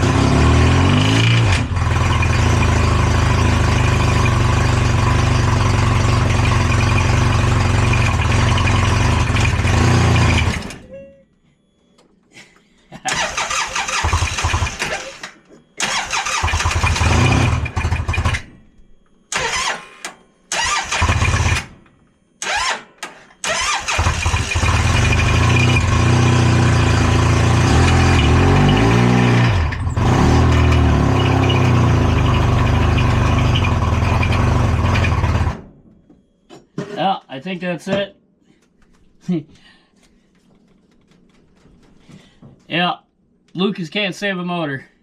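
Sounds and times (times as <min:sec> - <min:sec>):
engine cranking and running: 0:00.0 - 0:10.8, 0:13.1 - 0:18.6, 0:19.3 - 0:21.8, 0:22.4 - 0:35.7.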